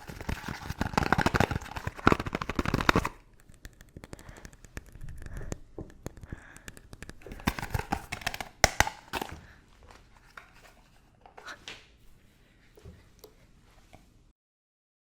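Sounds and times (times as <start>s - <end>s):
crinkly scratching: 0.0s - 9.3s
fast tapping on objects: 0.0s - 9.6s.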